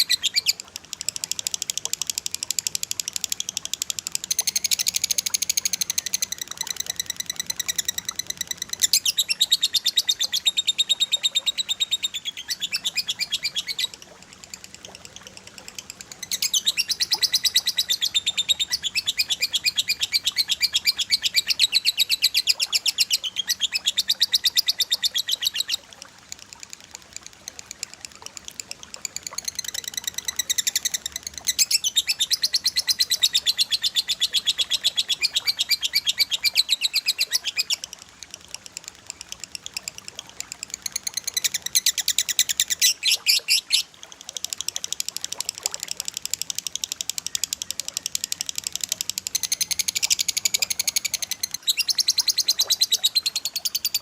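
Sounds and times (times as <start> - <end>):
rapid high bird chirps: 0.0 - 2.8, 3.6 - 14.0, 14.6 - 25.8, 29.1 - 37.8, 40.8 - 43.9, 47.2 - 54.0.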